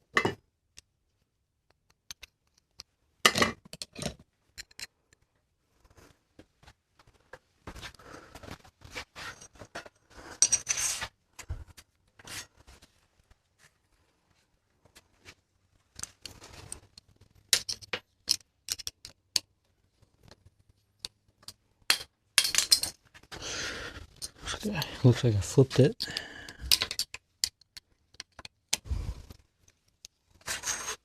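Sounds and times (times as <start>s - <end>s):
clicks and clinks of bike parts: 2.0s - 5.3s, 15.9s - 19.5s, 21.0s - 23.3s, 26.0s - 28.8s.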